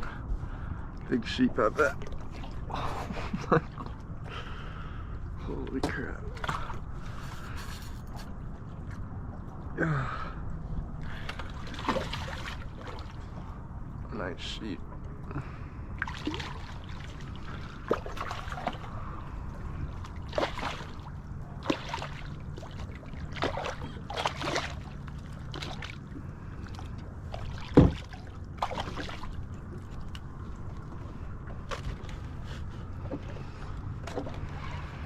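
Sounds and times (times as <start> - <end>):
steady low rumble: 0.0 - 35.0
knocks and clatter on kayak: 27.6 - 28.2.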